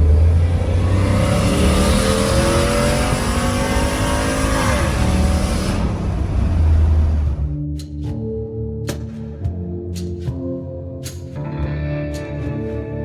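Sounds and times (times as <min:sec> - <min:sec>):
truck engine accelerating: 0:00.0 - 0:07.5
wind and road noise: 0:00.0 - 0:07.6.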